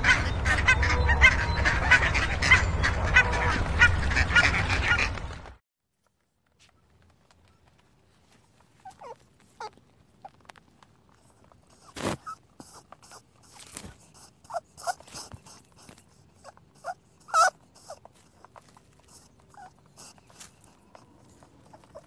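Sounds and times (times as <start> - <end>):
rabbits squeaking: 8.6 - 22.0.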